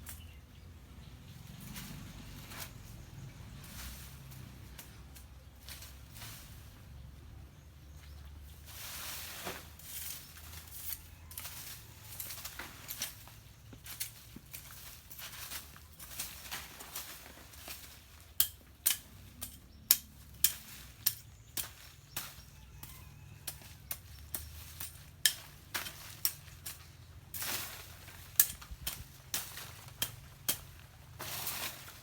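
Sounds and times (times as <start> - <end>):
hand tool chopping bush: 8.6 - 32.0.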